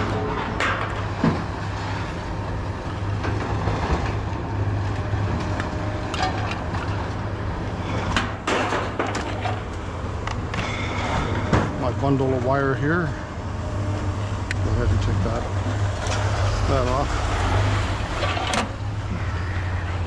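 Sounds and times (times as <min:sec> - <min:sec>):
knocks and clatter: 0:00.0 - 0:02.1, 0:03.0 - 0:12.1
vehicle engine humming: 0:00.0 - 0:20.0.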